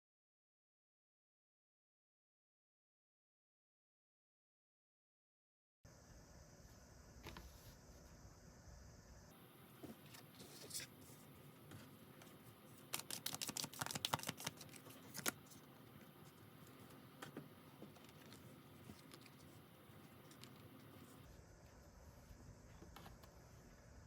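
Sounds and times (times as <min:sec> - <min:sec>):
cards clicking and tapping: 0:12.9 - 0:15.5.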